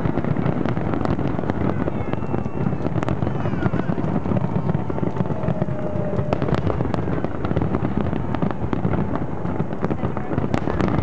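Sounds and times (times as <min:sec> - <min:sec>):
fireworks booming: 0:00.0 - 0:11.0
fireworks cracks: 0:00.0 - 0:11.0.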